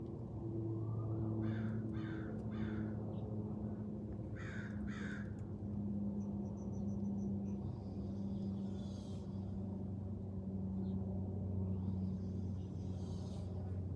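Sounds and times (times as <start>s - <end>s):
steady low hum: 0.0s - 13.9s
bird cawing harshly: 1.4s - 2.9s, 4.4s - 5.3s.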